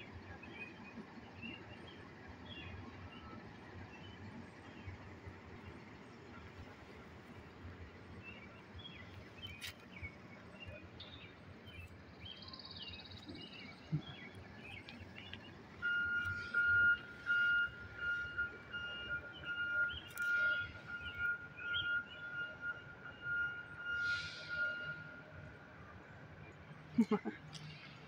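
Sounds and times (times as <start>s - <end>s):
small birds chirping: 8.2s - 17.6s, 19.3s - 21.9s.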